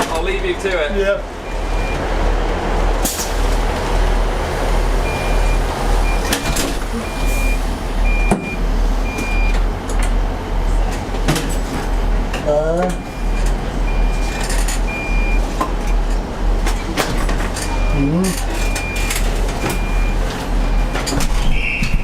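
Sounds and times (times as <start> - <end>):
loud low rumble: 0.0 - 18.7
reversing beeper: 1.4 - 2.0, 5.0 - 9.6, 12.9 - 15.5, 17.6 - 21.0.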